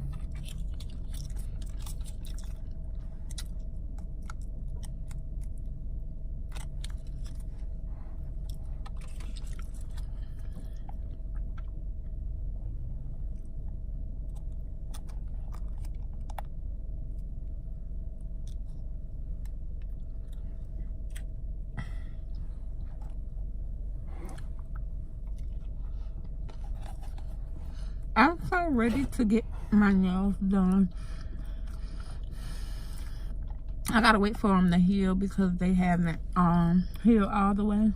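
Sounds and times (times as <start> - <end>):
person chewing food: 0.0 - 5.8, 6.4 - 12.2, 14.2 - 17.3, 18.2 - 23.2, 24.2 - 28.1, 31.1 - 33.9
steady low hum: 0.0 - 37.9.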